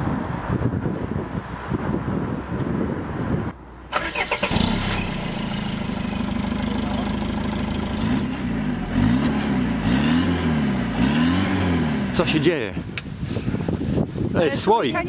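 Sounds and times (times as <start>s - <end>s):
diesel engine starting and running: 3.4s - 12.9s.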